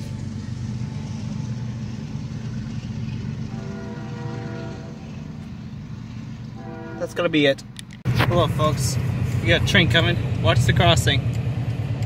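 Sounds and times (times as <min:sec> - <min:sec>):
diesel freight train rumble: 0:00.0 - 0:12.0
distant locomotive horn chord: 0:03.2 - 0:07.4.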